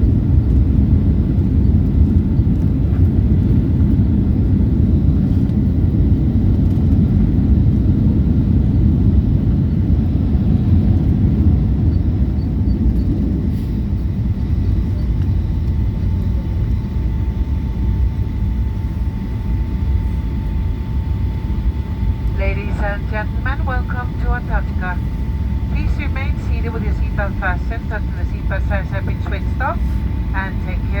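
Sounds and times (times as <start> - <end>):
aircraft cabin rumble: 0.0 - 31.0
faint steady whine: 11.0 - 31.0.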